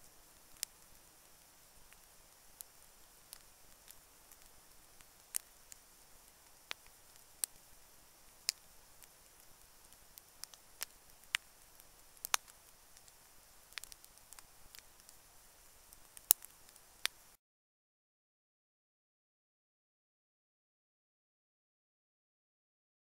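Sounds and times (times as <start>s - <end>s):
faint steady hiss: 0.0s - 17.4s
burning wood snapping and popping: 0.4s - 7.8s, 8.4s - 15.2s, 15.8s - 17.2s.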